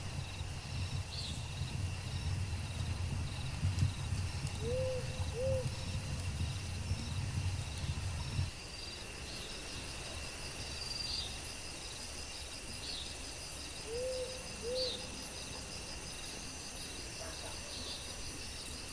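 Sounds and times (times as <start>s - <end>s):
low rumble: 0.0s - 8.6s
insects and crickets trilling: 0.0s - 18.9s.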